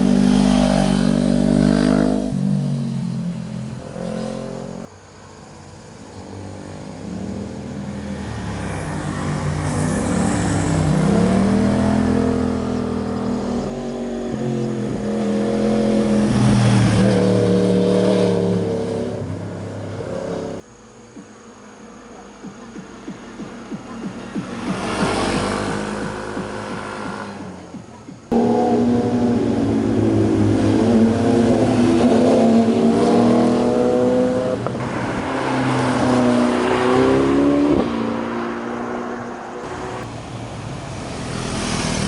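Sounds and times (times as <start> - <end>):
motorcycles passing and revving: 0.0 - 42.0.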